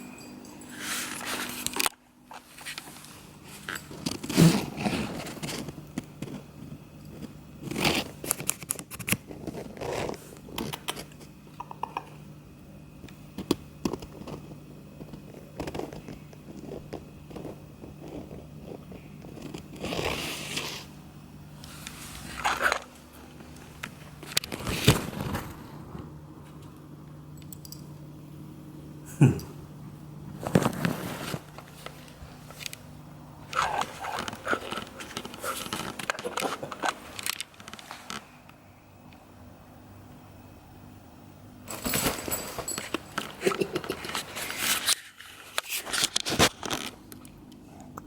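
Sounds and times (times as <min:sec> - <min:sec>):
cat tunnel rustling and crackling: 0:21.6 - 0:26.2, 0:30.4 - 0:32.8, 0:33.4 - 0:38.4.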